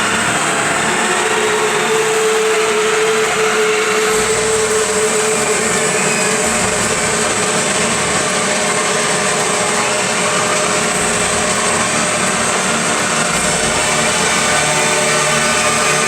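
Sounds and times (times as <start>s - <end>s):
large fans roaring: 0.0s - 16.0s.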